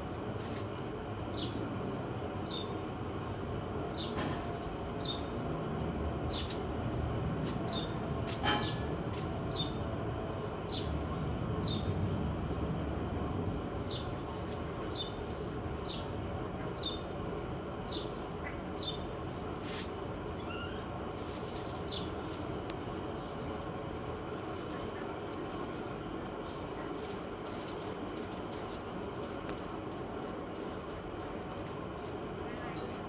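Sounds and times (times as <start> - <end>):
low background rumble: 0.0 - 33.0
small bird chirping: 20.4 - 20.9.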